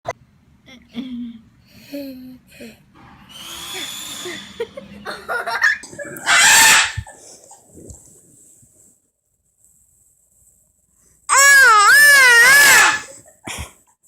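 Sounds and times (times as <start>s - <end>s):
bird calling and screeching: 6.2s - 7.0s, 11.3s - 13.1s.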